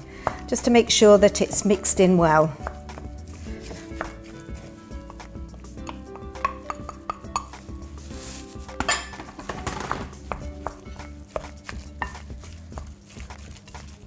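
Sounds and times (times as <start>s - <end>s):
spoon scraping rustle: 3.2s - 5.0s, 7.4s - 9.2s, 10.9s - 14.0s
spoon clinking against bowl: 5.9s - 7.6s, 8.8s - 9.3s.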